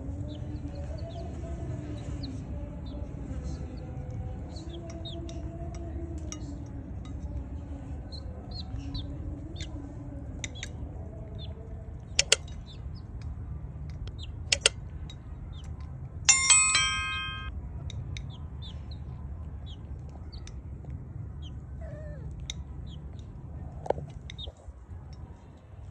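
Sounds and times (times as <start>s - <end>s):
sharp clicks: 12.2s - 12.5s
bell-like chime: 16.3s - 17.5s.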